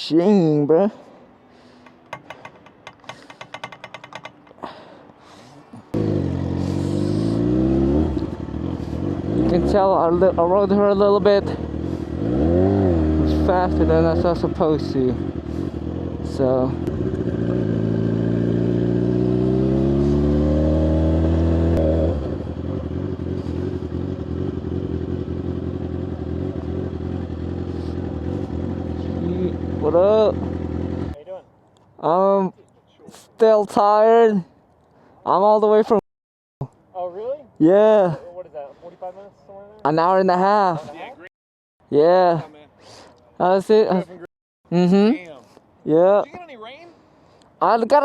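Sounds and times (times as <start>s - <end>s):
motorcycle engine revving: 5.9s - 31.2s.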